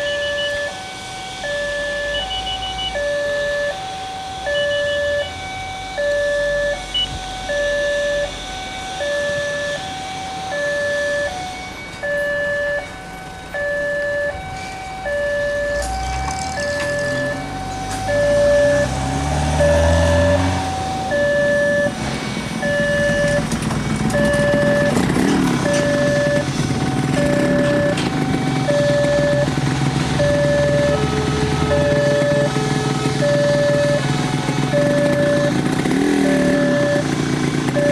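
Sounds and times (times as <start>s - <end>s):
diesel locomotive engine: 0.0s - 37.9s
rumble of passing train: 18.9s - 34.8s.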